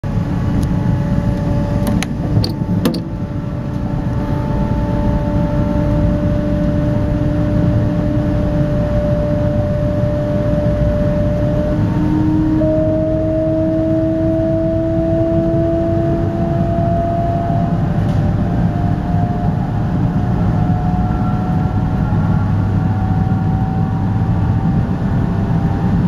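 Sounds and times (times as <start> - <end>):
train cabin rumble: 0.0 - 5.5, 16.6 - 26.0
electric motor rising tones: 0.6 - 18.0.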